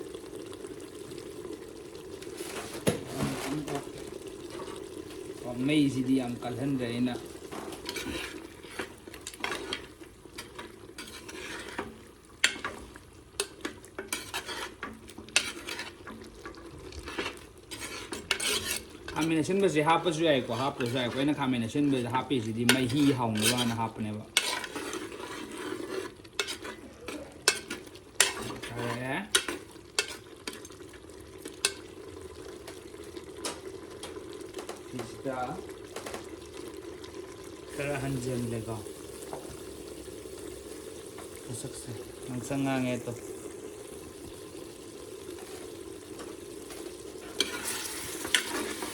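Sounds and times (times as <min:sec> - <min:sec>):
meat sizzling in a pan: 0:00.0 - 0:48.9
utensil scraping a pan: 0:02.2 - 0:30.7, 0:45.3 - 0:48.9.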